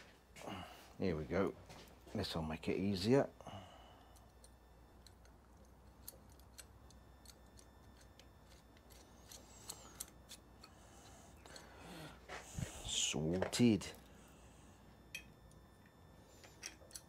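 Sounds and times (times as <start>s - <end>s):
light clicks of metal hardware: 15.1s - 17.0s.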